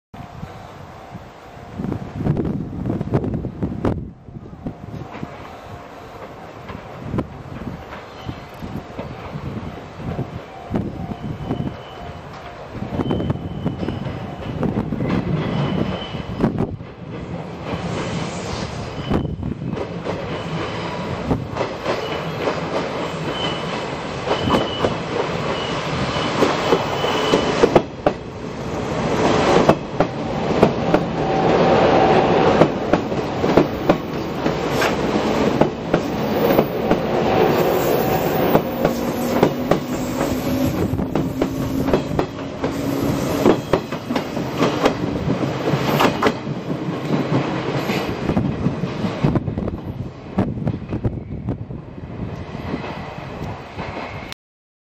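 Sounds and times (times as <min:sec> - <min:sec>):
high squeal: 0:08.1 - 0:08.5, 0:10.6 - 0:12.2, 0:12.9 - 0:16.4, 0:17.8 - 0:21.0, 0:23.0 - 0:27.6, 0:36.1 - 0:44.2
train wheels clattering: 0:19.0 - 0:28.3, 0:29.1 - 0:49.4.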